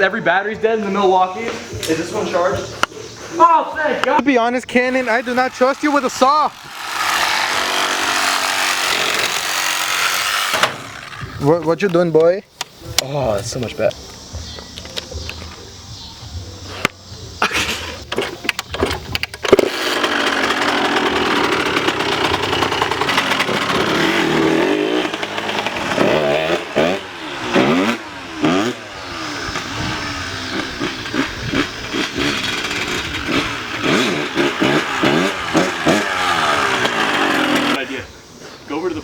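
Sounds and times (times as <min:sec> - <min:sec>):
dirt bike engine revving: 0:04.1 - 0:11.8, 0:19.5 - 0:38.0.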